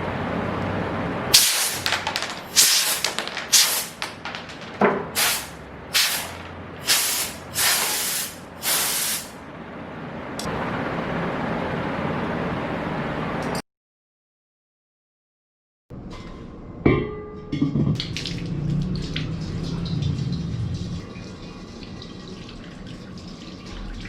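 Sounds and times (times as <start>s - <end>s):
compressed air hissing blasts: 1.3s - 4.1s, 5.2s - 9.4s.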